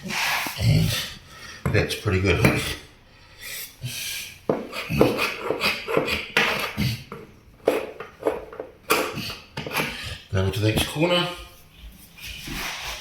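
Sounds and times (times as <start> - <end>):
hand scraper rasping on timber floor: 4.5 - 10.2, 12.3 - 13.0.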